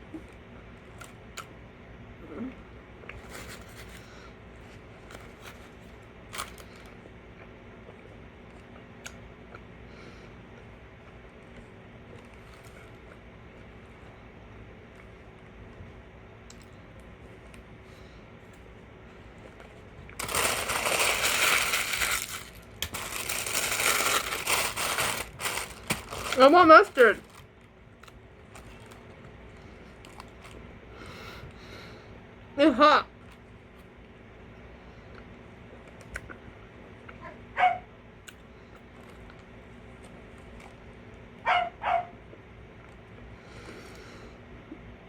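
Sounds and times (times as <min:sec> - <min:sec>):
paper wrapper crinkling: 0:20.1 - 0:27.5.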